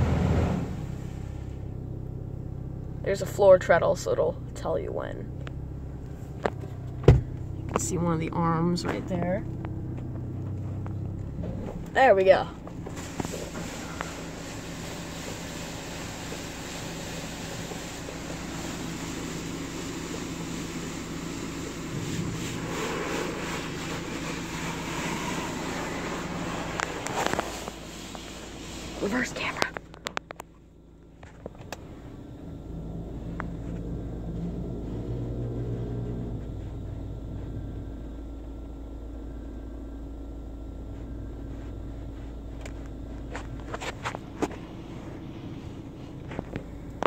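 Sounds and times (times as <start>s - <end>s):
water spraying against car: 0.0s - 1.8s, 11.8s - 30.4s
car idling low rumble: 0.0s - 47.0s
steady low hum: 0.0s - 47.0s.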